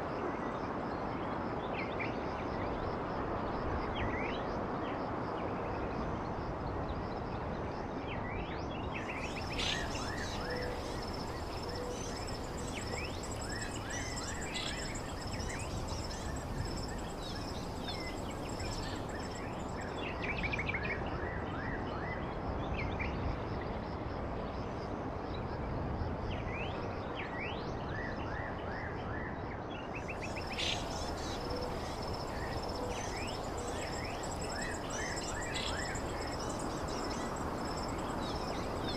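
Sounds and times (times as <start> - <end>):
high insect trill: 9.0 - 20.2, 30.1 - 38.9
wild birds chirping: 9.0 - 20.2, 30.0 - 38.9
background hiss: 9.1 - 20.1, 30.1 - 38.9.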